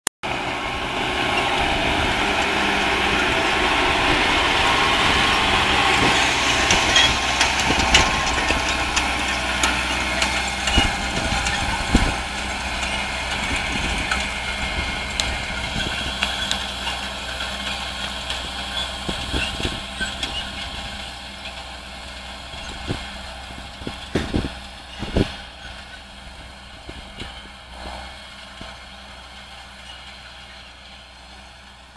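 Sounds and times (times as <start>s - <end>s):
tractor diesel engine running: 0.2s - 31.9s
knocks and rattles: 2.9s - 21.1s.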